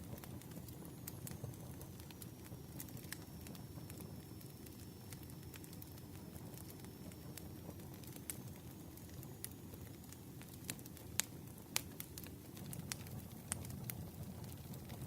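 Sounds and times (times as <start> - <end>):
low rumble of flames: 0.0 - 15.0
wood crackling and popping: 0.0 - 15.0.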